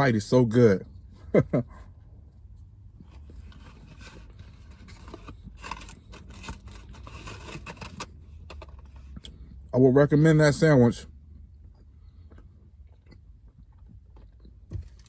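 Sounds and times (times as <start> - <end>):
person chewing food: 11.2 - 15.0.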